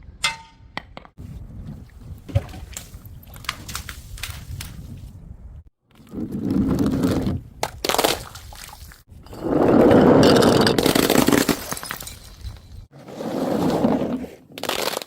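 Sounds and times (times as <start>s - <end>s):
objects crunching and cracking: 14.0s - 15.0s.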